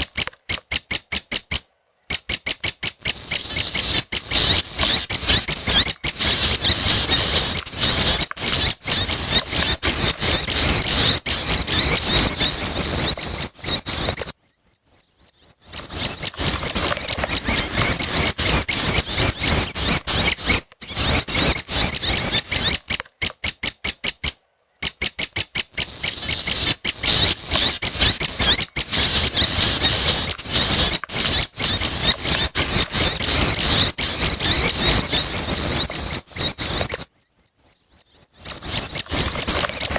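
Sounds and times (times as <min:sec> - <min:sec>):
bird chicks chirping: 0:00.0 - 0:39.9.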